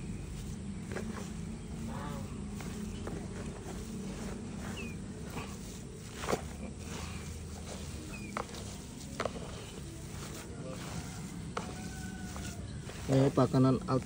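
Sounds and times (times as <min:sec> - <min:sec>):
high falling bird chirps: 0:04.3 - 0:05.5.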